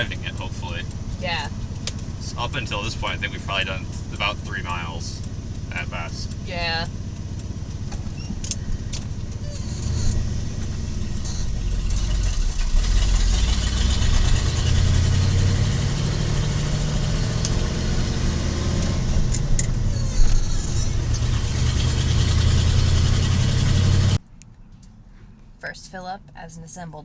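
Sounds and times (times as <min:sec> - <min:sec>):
truck engine droning: 0:00.0 - 0:24.2
road noise: 0:00.0 - 0:26.1.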